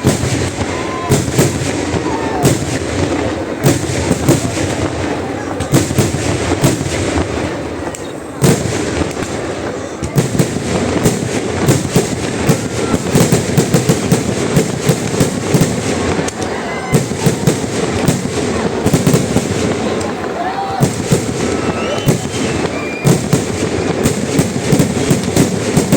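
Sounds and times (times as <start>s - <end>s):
firework explosions: 0.0s - 25.9s.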